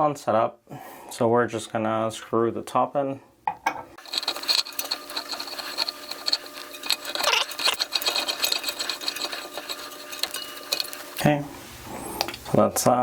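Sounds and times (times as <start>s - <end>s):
metal rattling and scraping: 4.0s - 12.7s.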